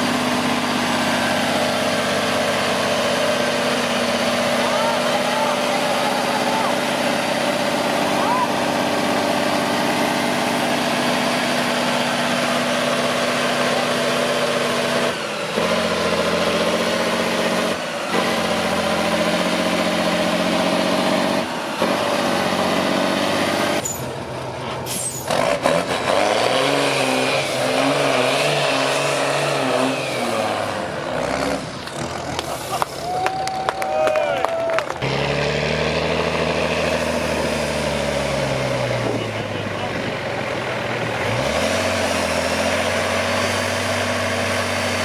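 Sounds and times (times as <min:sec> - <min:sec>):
off-road truck engine pulling hard: 0:00.0 - 0:45.0.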